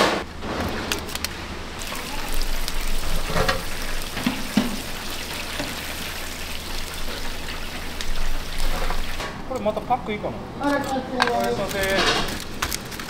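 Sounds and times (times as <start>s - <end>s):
food frying sizzle: 0.4s - 10.2s
utensils knocking: 8.1s - 13.0s.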